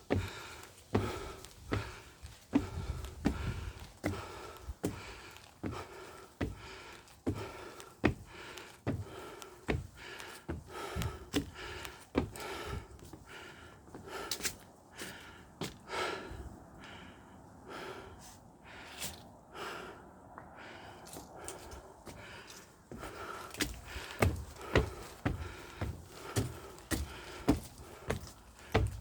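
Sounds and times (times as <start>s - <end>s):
person breathing hard in gasps: 0.1s - 29.0s
footsteps: 21.1s - 29.0s.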